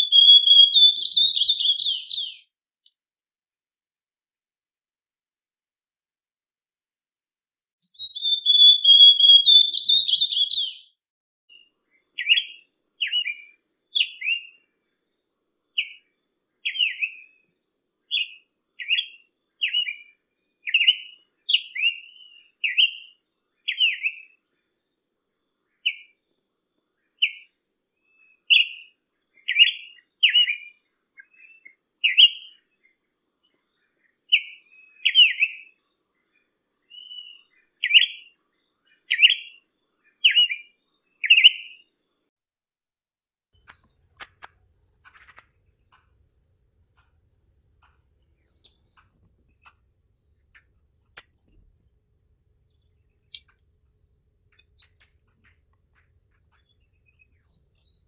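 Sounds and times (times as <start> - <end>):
whistled bird song: 0.0 - 2.5, 7.8 - 14.7, 15.8 - 17.5, 18.1 - 24.5, 27.0 - 41.9, 47.8 - 49.1, 56.0 - 58.0.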